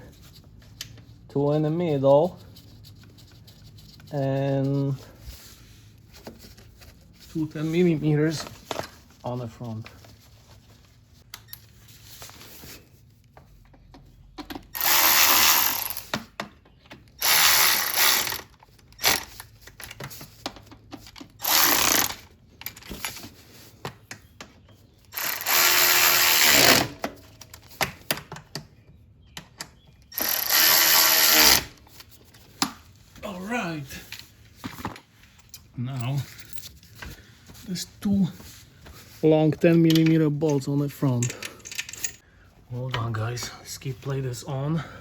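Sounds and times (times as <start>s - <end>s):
power driver spinning bolts: 14.7s - 16.1s, 17.2s - 19.3s, 21.4s - 22.2s, 25.2s - 27.0s, 30.2s - 31.7s.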